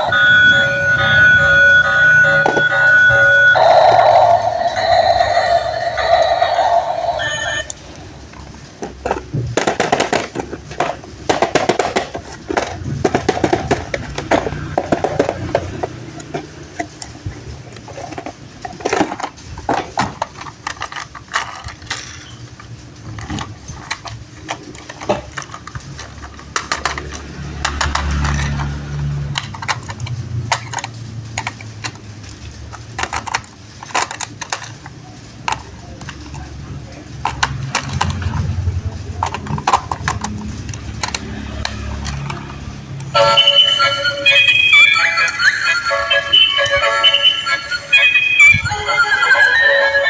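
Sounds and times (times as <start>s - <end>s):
hands handling plastic toy parts: 7.2s - 42.6s.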